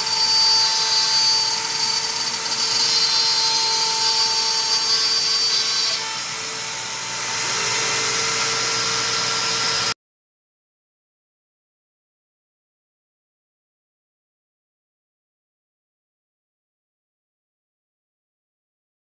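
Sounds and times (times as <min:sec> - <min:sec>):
router spindle whine: 0:00.0 - 0:10.0.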